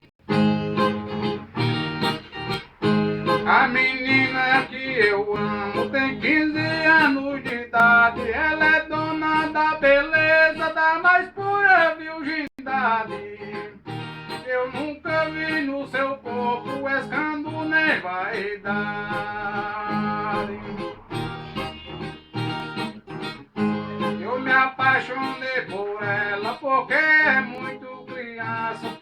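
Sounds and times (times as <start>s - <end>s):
viola strummed: 0.2s - 29.0s
man singing: 3.2s - 21.1s, 24.0s - 29.0s.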